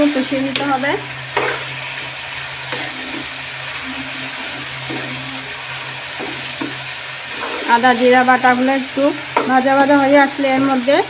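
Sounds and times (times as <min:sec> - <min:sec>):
food sizzling in oil: 0:00.0 - 0:11.0
metal spatula scraping: 0:00.5 - 0:08.4.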